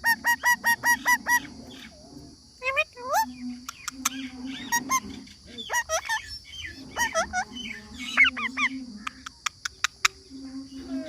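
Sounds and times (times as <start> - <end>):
parrot squawking: 5.6 - 9.3.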